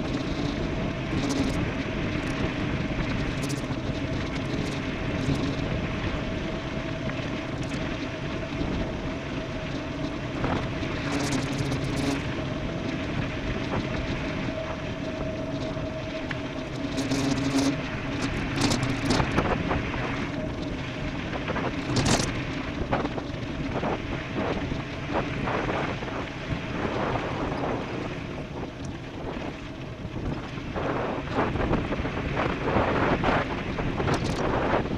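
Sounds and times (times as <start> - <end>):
steady hum: 0.0 - 34.9
wind buffeting microphone: 0.0 - 34.9.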